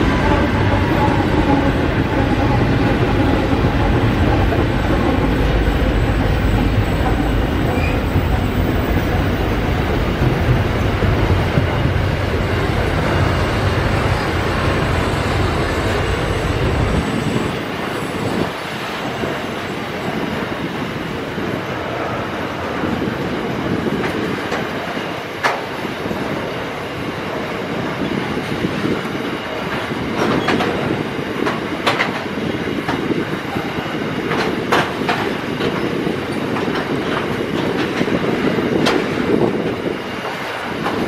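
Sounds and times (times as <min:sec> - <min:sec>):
freight wagons rumbling: 0:00.0 - 0:17.6
diesel locomotive passing: 0:00.0 - 0:41.0.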